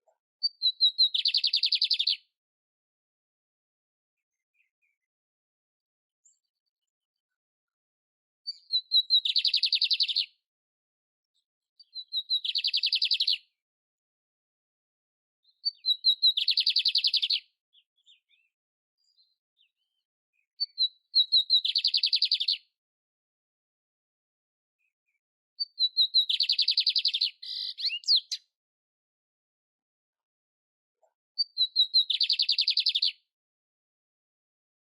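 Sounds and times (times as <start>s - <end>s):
canary singing: 0.4s - 2.2s, 8.5s - 10.3s, 11.8s - 13.4s, 15.5s - 17.4s, 20.6s - 22.6s, 25.6s - 28.5s, 31.4s - 33.2s.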